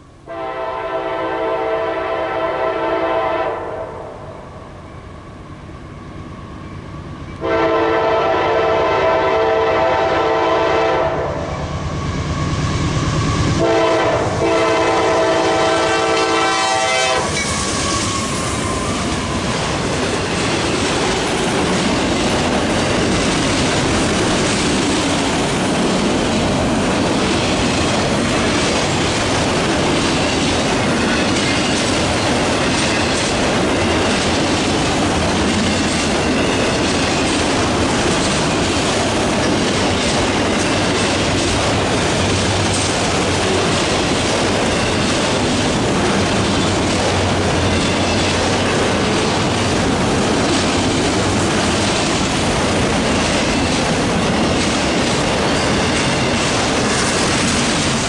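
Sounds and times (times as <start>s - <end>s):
diesel locomotives rumbling: 0.0s - 58.0s
rail cars rolling past: 0.0s - 58.0s
locomotive horn blasts: 0.3s - 4.2s, 7.4s - 11.5s, 13.6s - 17.4s
wheels clacking over rails: 17.3s - 58.0s.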